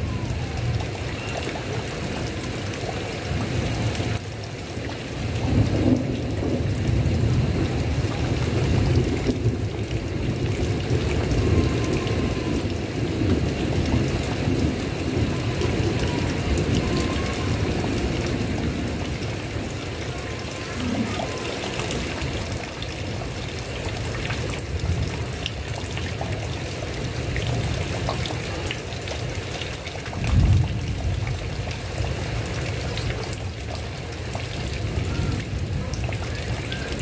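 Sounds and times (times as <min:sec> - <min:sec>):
heavy rain: 0:00.0 - 0:37.0
rolling thunder: 0:05.3 - 0:23.3, 0:30.1 - 0:32.5.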